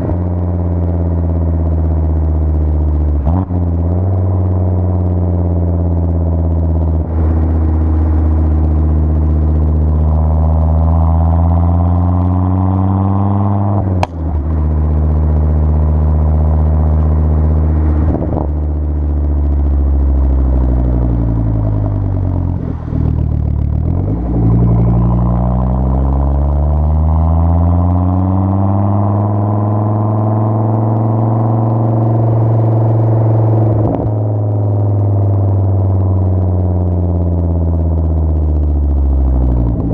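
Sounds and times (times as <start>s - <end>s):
car engine running: 0.0s - 39.9s
sharp click: 14.0s - 14.3s.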